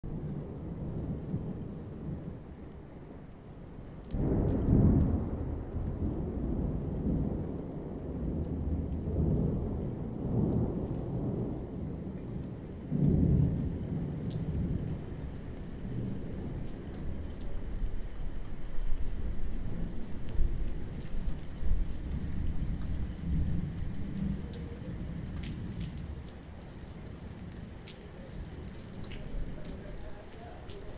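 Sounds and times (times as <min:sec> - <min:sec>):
steady rain: 0:00.0 - 0:30.9
thunder rumbling: 0:00.0 - 0:30.9
loud thunderclap: 0:04.1 - 0:17.3, 0:19.6 - 0:30.9.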